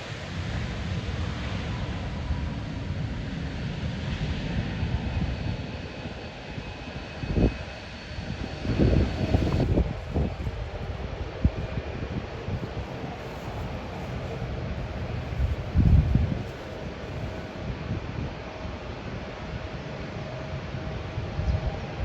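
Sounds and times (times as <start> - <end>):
jet engines whining: 0.0 - 22.0
wind buffeting microphone: 0.0 - 22.0.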